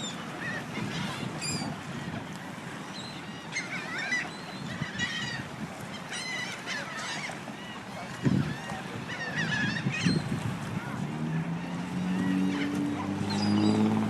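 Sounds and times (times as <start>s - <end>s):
ducks calling: 3.0s - 14.0s.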